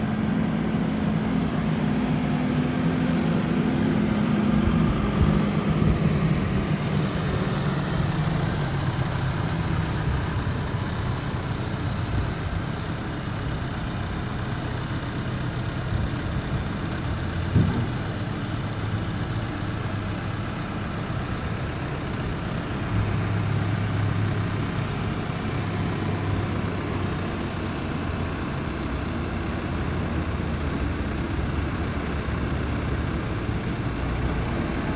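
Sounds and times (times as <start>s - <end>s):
diesel engine running: 0.0s - 34.9s
sharp knock: 17.5s - 18.0s.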